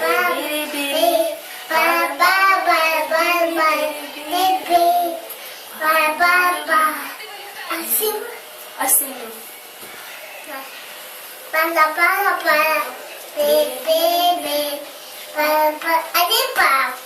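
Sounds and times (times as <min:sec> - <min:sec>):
child singing wordless chant: 0:00.0 - 0:07.1, 0:11.5 - 0:17.0.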